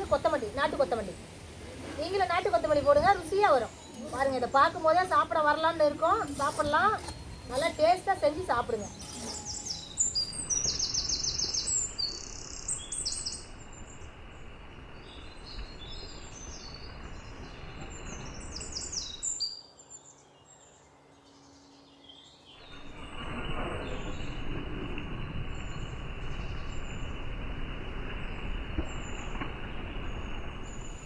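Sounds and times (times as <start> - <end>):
outdoor background hiss: 0.0 - 31.0
birds chirping and singing: 2.2 - 13.4.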